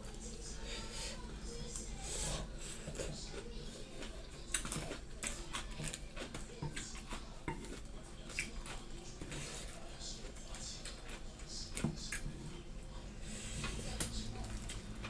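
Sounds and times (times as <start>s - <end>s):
chewing: 0.0s - 15.0s
cutlery scraping on a plate: 4.6s - 9.8s.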